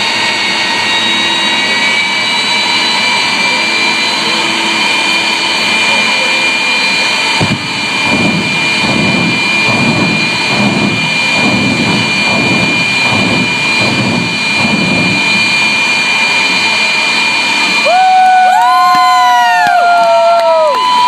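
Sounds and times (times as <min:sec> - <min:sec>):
low engine rumble: 0:00.0 - 0:17.8
jet turbine whine: 0:00.0 - 0:21.0.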